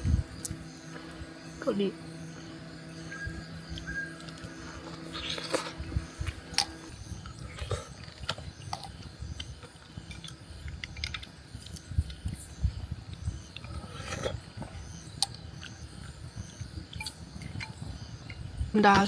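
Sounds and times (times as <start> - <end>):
person chewing: 3.7 - 12.4.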